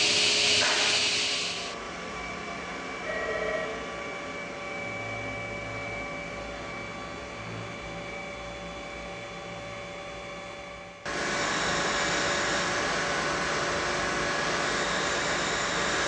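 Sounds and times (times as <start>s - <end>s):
loud steady rush: 0.0s - 1.8s
cutting machine hum and whine: 0.0s - 16.0s.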